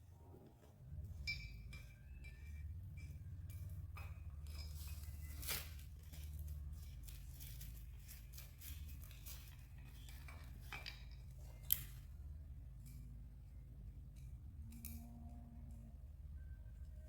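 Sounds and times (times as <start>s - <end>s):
low steady hum: 0.0s - 17.0s
metal tools clinking: 1.1s - 12.1s.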